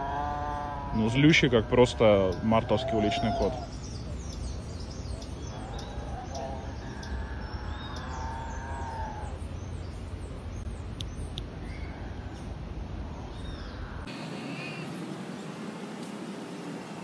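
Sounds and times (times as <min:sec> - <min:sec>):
wavering bird call: 0:00.0 - 0:04.0, 0:05.2 - 0:09.4, 0:13.6 - 0:15.0
birds chirping: 0:00.0 - 0:17.0.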